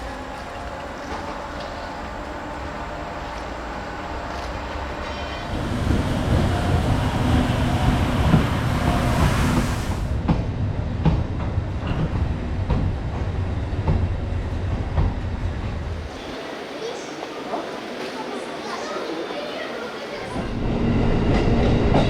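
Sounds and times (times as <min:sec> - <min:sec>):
train rumbling along track: 0:00.0 - 0:22.0.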